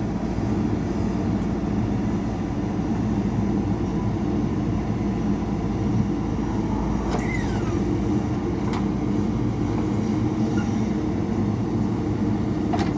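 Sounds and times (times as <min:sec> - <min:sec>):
diesel engine running: 0:00.0 - 0:12.9
short falling squeak: 0:06.8 - 0:08.1.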